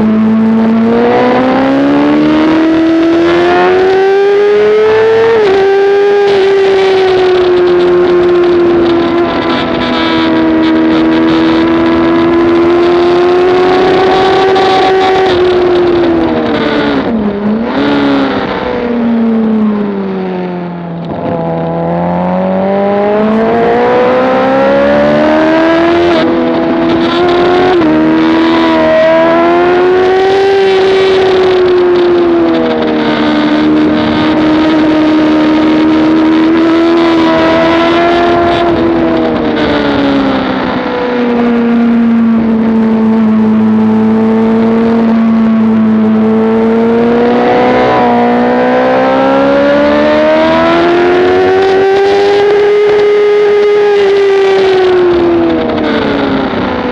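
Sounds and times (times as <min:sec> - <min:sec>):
motorcycle engine revving: 0:00.0 - 0:56.9
wind noise: 0:00.0 - 0:56.9.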